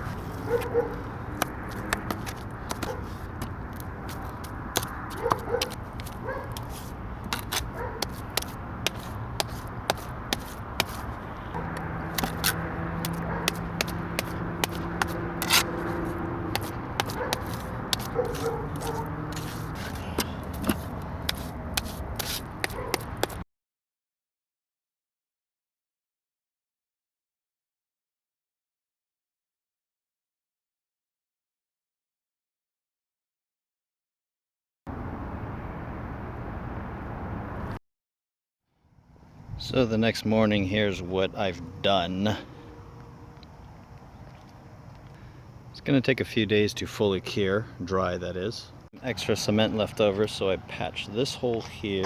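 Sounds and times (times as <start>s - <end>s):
tool scraping wet cement: 0.0s - 23.4s.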